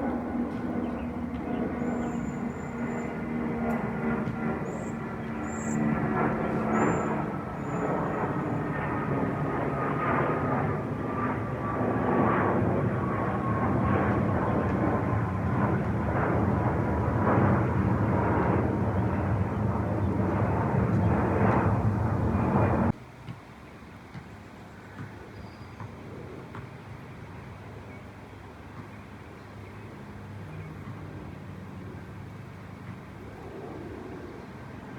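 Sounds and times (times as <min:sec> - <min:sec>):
jet airliner passing overhead: 0:00.0 - 0:23.0, 0:30.0 - 0:34.9.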